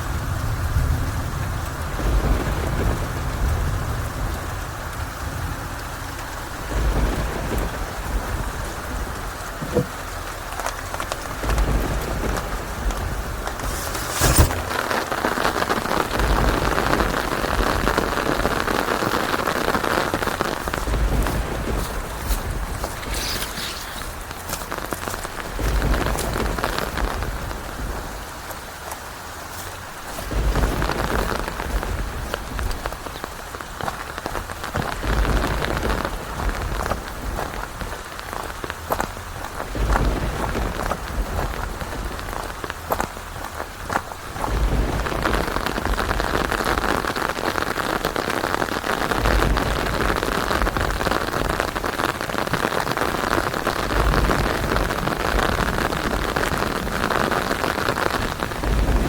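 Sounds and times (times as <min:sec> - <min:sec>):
heavy rain falling: 0:00.0 - 0:59.0
distant thunder rumbling: 0:06.5 - 0:10.0, 0:11.2 - 0:23.3, 0:30.0 - 0:38.0, 0:48.9 - 0:59.0.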